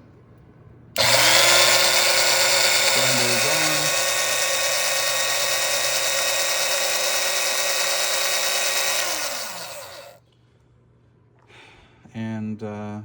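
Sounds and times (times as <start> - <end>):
coffee grinder motor whining: 1.0 - 10.2.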